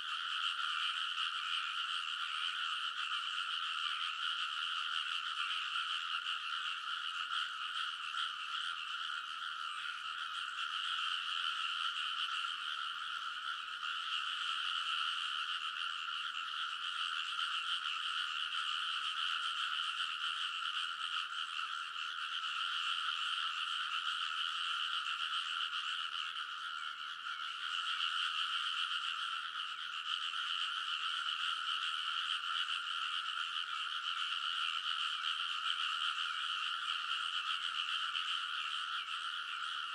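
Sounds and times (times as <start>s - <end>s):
frogs croaking in chorus: 0.0s - 39.9s.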